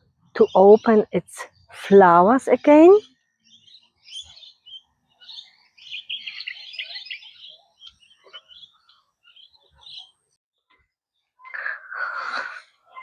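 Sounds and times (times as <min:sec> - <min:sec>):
birds chirping and twittering: 0:00.0 - 0:10.4.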